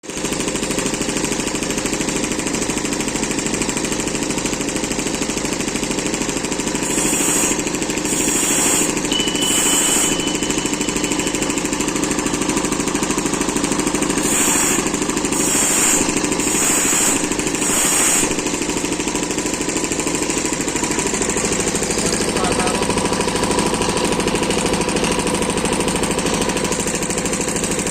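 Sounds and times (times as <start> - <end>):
sharpening grinder running: 0.0 - 27.9
high grinding hiss: 6.8 - 10.5, 14.1 - 18.6.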